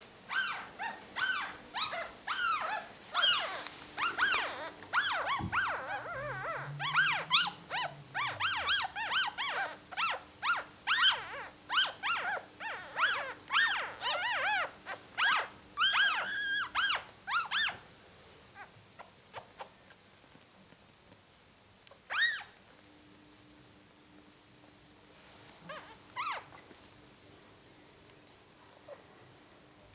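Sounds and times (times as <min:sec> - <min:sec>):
puppies squeaking: 0:00.3 - 0:17.8, 0:22.1 - 0:22.6, 0:25.7 - 0:26.6.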